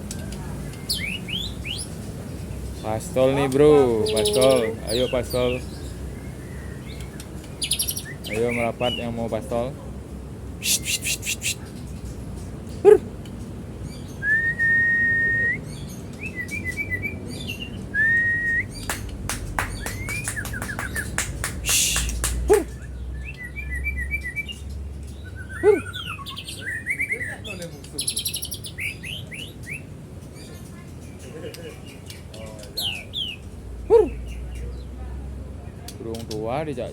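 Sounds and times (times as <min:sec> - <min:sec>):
songbird singing varied song: 0:00.6 - 0:09.2, 0:13.8 - 0:30.6.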